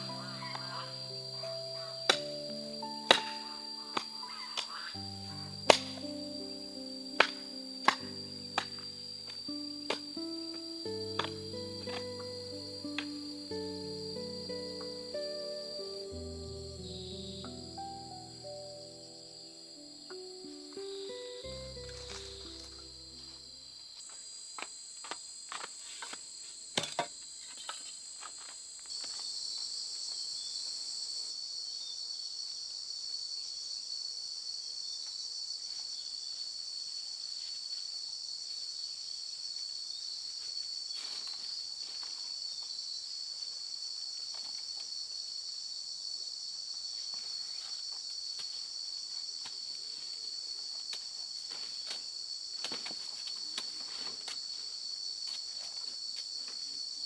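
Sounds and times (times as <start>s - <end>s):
insects trilling: 0.0s - 24.1s.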